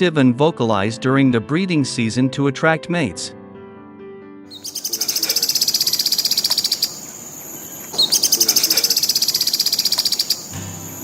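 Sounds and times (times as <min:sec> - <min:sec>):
cuckoo high-pitched trills: 0:04.5 - 0:11.0
guitar music: 0:10.4 - 0:11.0.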